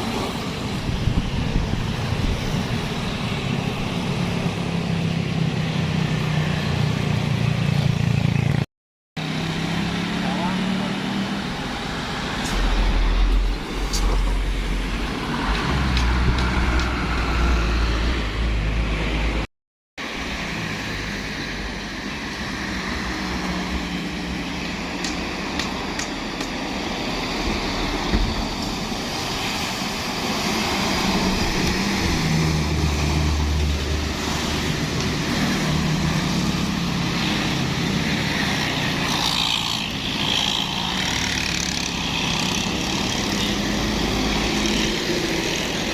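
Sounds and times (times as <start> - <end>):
passing traffic rumble: 0.0 - 45.9
heavy truck engines labouring: 9.2 - 45.9.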